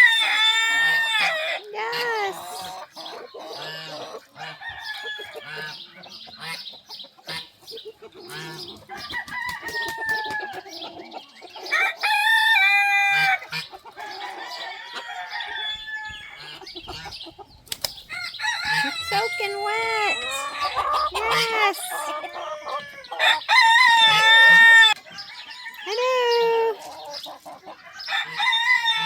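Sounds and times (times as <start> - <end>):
rooster crowing: 0.0 - 1.6, 9.0 - 10.6, 11.7 - 13.4, 14.0 - 16.4, 18.1 - 21.2, 21.9 - 25.9, 28.0 - 29.0
chickens clucking: 0.0 - 29.0.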